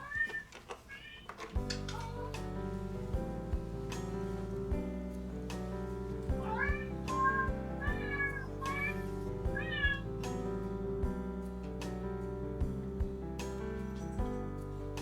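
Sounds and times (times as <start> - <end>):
cat meowing: 0.0 - 1.3, 6.4 - 10.1.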